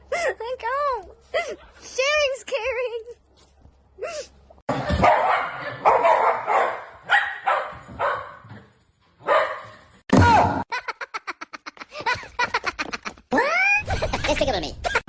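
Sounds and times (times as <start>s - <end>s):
dog barking: 4.9s - 8.5s, 9.2s - 9.8s.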